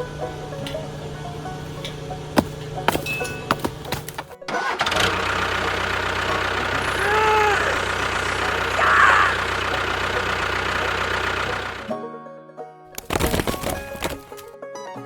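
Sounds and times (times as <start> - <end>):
engine idling: 0.0 - 11.9.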